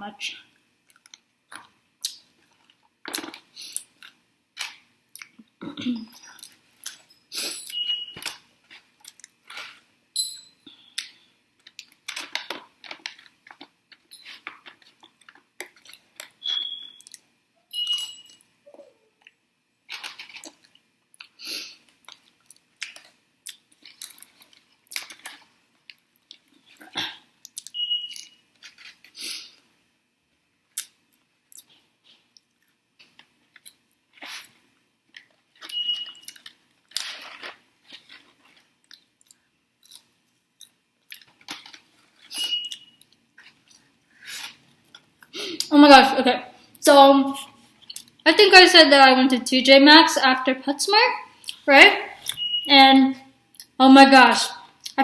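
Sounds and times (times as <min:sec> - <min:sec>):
chewing french fries: 0:08.7 - 0:09.9, 0:19.2 - 0:29.1, 0:30.7 - 0:45.7.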